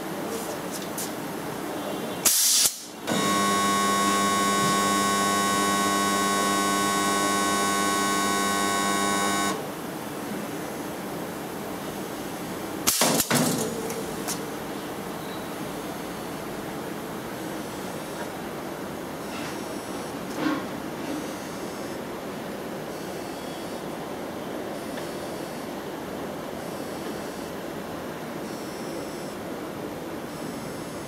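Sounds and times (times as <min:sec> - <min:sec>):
compressed air hissing: 0:02.3 - 0:03.0
welding transformer humming: 0:02.6 - 0:09.7.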